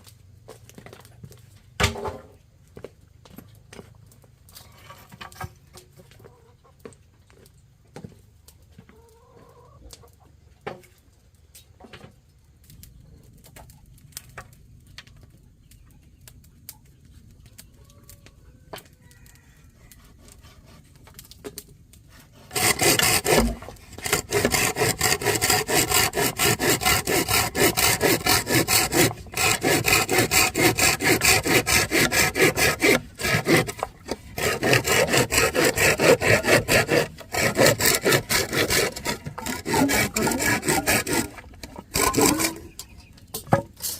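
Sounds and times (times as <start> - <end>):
hand saw cutting wood: 22.1 - 43.9.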